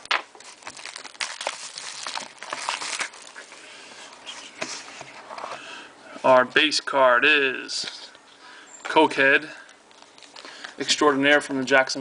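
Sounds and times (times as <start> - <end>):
card pack wrapper tearing: 0.0 - 3.6.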